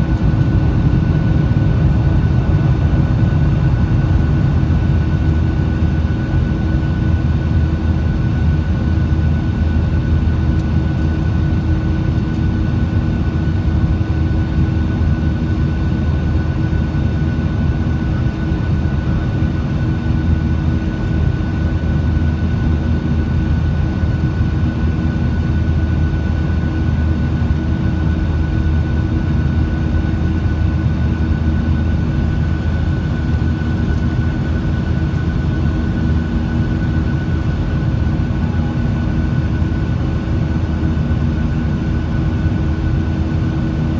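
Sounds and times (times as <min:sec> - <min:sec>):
jet engines rumbling and whining: 0:00.0 - 0:43.9.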